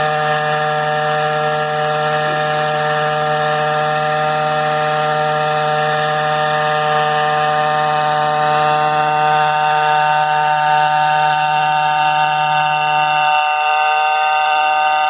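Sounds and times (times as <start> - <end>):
small engine buzzing hum: 0.0 - 15.0.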